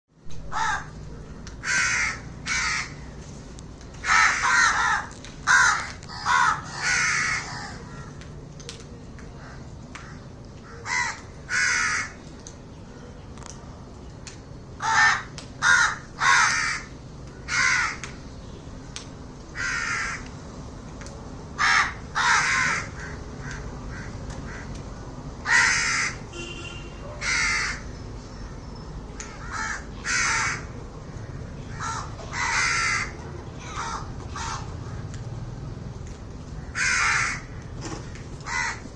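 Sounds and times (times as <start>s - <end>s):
birds giving harsh calls: 0.4s - 3.2s, 4.0s - 8.2s, 9.4s - 12.3s, 14.8s - 18.5s, 19.4s - 20.4s, 21.5s - 24.8s, 25.4s - 35.1s, 36.5s - 38.9s.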